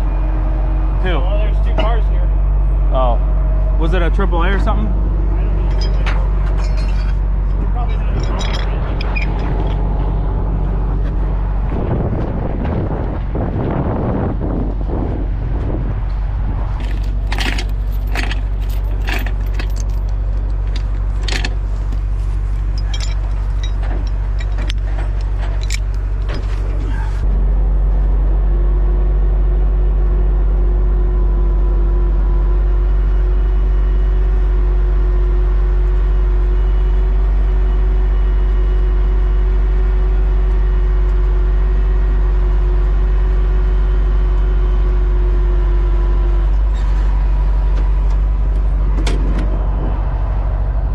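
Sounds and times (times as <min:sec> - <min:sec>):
steady whine: 0:00.0 - 0:30.2
diesel engine running: 0:00.0 - 0:50.9
metal clinking and rattling: 0:05.6 - 0:10.0, 0:16.8 - 0:27.2.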